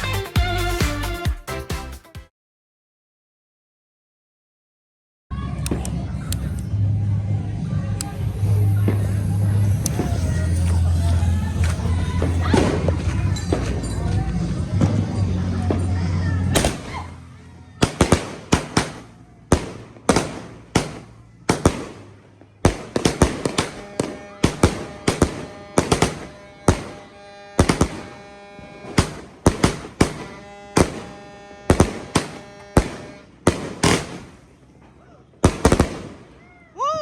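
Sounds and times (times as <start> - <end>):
fireworks sharp bangs: 8.0 - 14.0, 16.5 - 17.2, 17.8 - 36.4.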